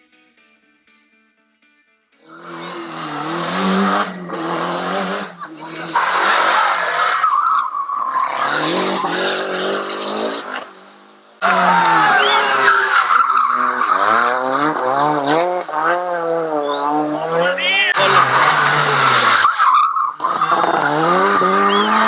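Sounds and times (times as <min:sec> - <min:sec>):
rally car engines revving hard: 0:02.2 - 0:22.0
tyres squealing: 0:02.6 - 0:07.3, 0:11.4 - 0:14.2, 0:17.9 - 0:20.8.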